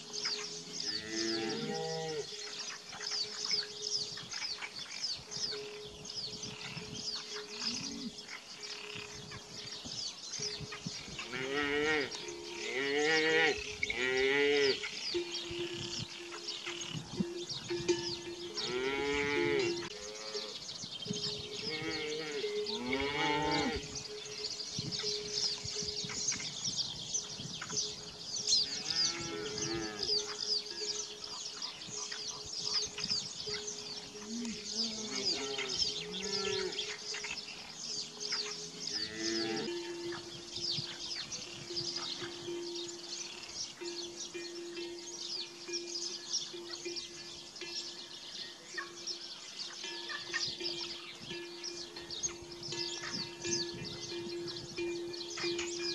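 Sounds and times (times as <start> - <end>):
livestock calling: 0.0 - 4.7, 28.6 - 43.5
small birds chirping: 0.0 - 55.9.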